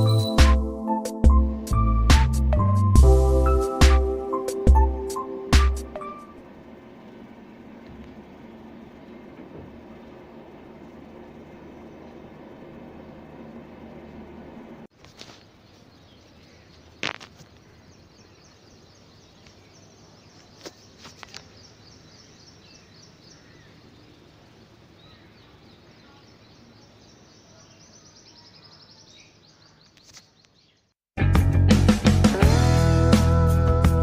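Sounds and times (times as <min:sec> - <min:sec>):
faint high bird chirping: 0:00.0 - 0:00.5, 0:15.5 - 0:30.9.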